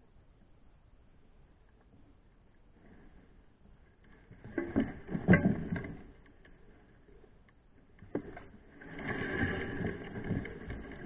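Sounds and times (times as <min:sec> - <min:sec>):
mountain bike clattering: 0:04.2 - 0:08.7.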